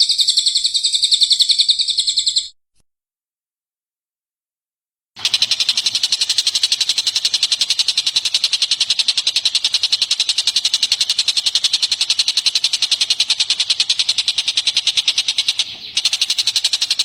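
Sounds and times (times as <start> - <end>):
songbird high-pitched trill: 0.0 - 2.6.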